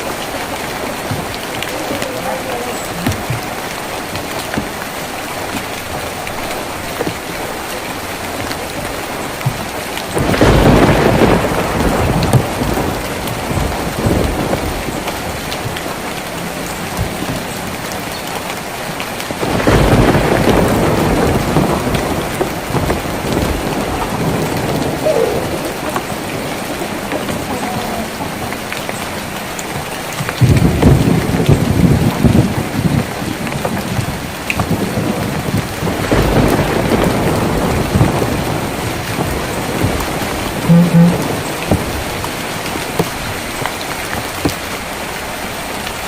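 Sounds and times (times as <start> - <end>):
rain on a tin roof: 0.0 - 46.0
thunder rolling: 6.6 - 18.1, 19.3 - 43.4.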